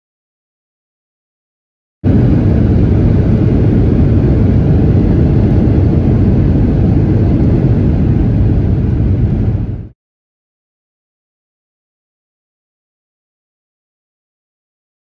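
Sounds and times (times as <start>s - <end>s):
airplane engines rumbling: 2.0s - 10.0s.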